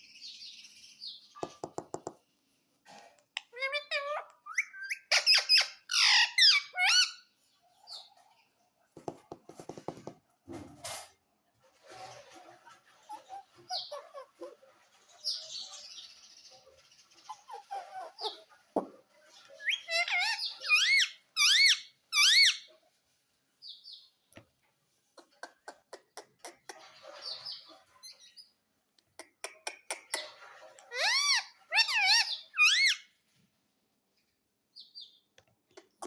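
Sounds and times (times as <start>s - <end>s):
parrot chattering and clicking: 3.2s - 7.1s, 25.2s - 27.0s, 29.0s - 33.0s, 35.4s - 36.0s
parrot squawks: 3.5s - 7.2s, 19.6s - 22.7s, 30.1s - 33.1s.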